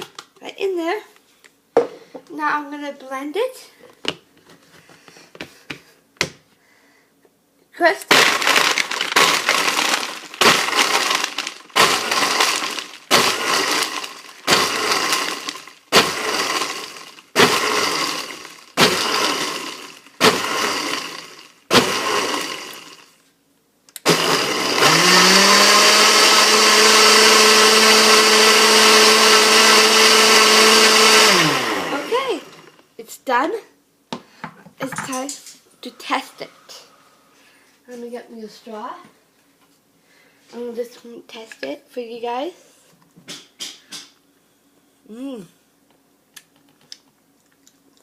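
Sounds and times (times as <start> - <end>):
blender crushing ice: 8.0 - 23.2, 24.0 - 32.8.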